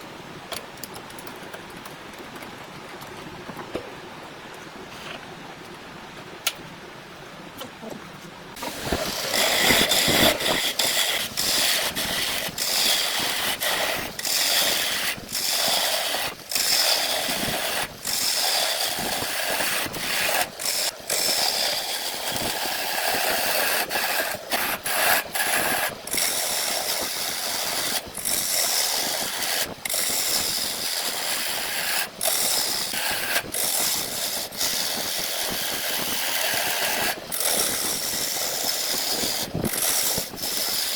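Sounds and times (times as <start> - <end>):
power tool cutting wood: 8.6 - 40.9.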